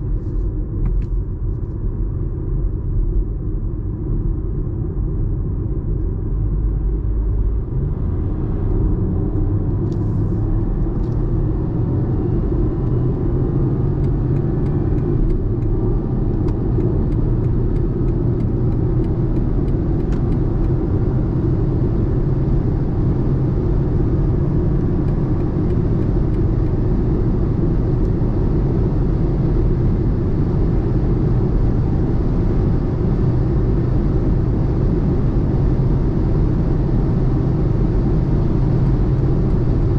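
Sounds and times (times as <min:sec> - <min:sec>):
car engine and road noise drone: 0:00.0 - 0:39.9
faint light ticks: 0:16.3 - 0:20.8.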